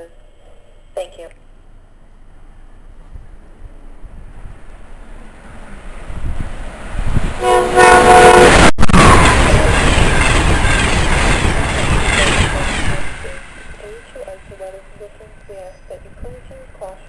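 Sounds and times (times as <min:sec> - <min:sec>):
train wheels rushing on rail: 0:03.7 - 0:17.0
train horn blast: 0:07.4 - 0:09.6.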